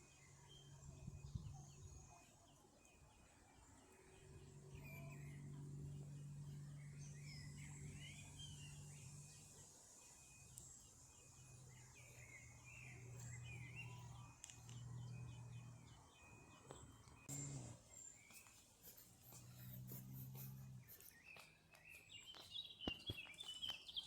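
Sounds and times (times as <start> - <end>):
small birds chirping: 0.0 - 24.0
steady low hum: 3.6 - 21.7.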